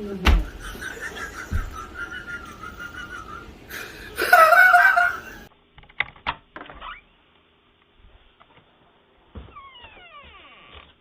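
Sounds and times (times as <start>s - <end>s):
high-pitched laughter: 0.4s - 5.5s.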